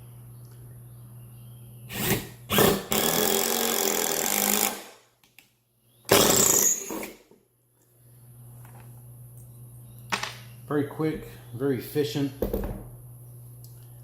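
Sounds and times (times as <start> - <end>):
impact driver driving screw into wood: 1.9 - 5.0, 6.1 - 7.2.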